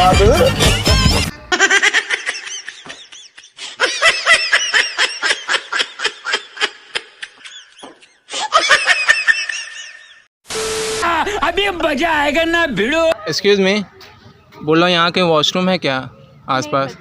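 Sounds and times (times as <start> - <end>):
person laughing hard: 1.4 - 10.2.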